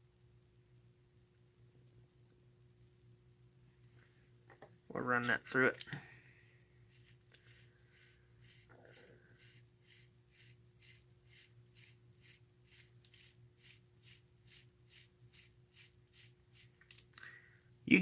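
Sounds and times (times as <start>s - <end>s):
steady low hum: 0.0s - 18.0s
toy locomotive gears ticking: 7.0s - 17.0s.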